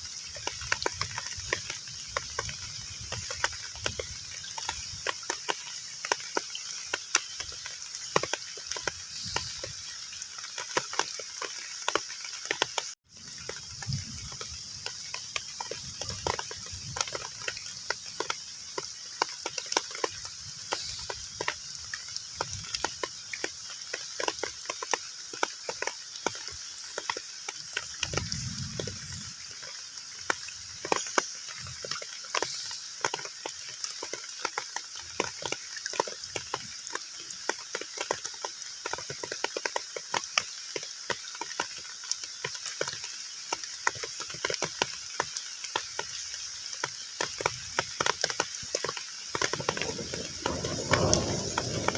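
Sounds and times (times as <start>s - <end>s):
heavy rain on a pond: 0.0s - 51.9s
low rumbles: 49.8s - 51.9s.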